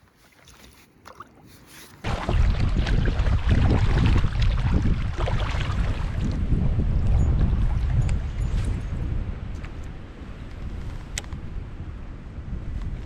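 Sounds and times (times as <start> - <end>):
water noise: 0.0 - 10.0
wind buffeting microphone: 2.0 - 13.0
faint small clicks: 9.5 - 11.4.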